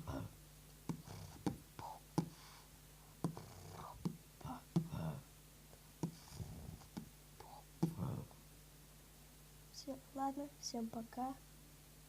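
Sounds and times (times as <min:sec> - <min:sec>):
breathy hummed mouth sounds: 0:00.0 - 0:08.4
beatboxing pops and clicks: 0:00.8 - 0:02.4, 0:03.2 - 0:05.0, 0:06.0 - 0:08.1.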